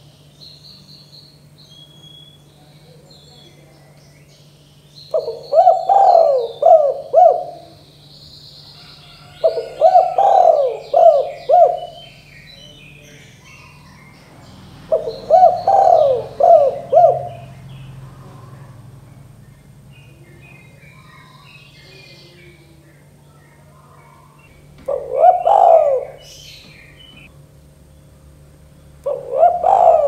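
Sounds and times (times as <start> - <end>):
small birds chirping faintly: 0.0 - 30.0
dove cooing: 5.1 - 8.0, 8.7 - 22.7, 23.6 - 27.3, 29.0 - 30.0.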